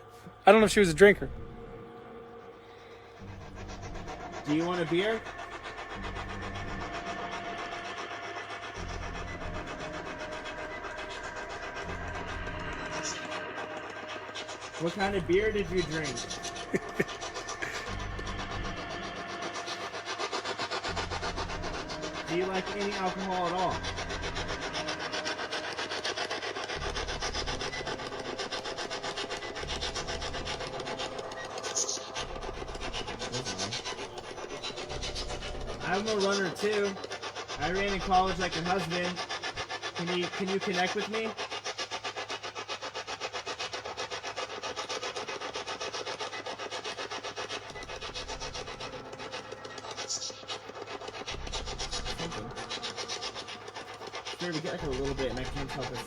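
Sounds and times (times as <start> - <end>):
low rumble: 1.2 - 2.3.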